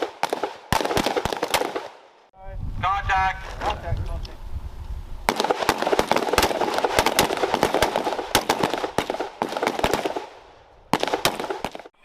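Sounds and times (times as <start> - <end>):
rifles firing: 0.0 - 2.0, 5.3 - 11.9.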